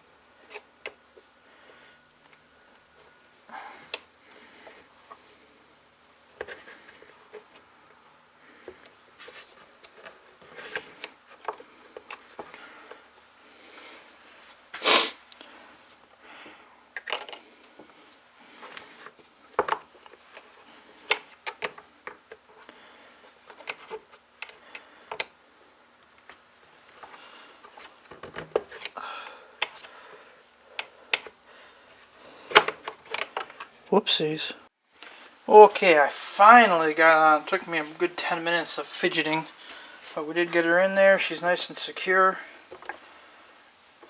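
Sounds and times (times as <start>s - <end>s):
plastic parts clicking and tapping: 18.7s - 22.4s, 23.5s - 25.4s, 30.8s - 31.4s, 32.5s - 33.7s.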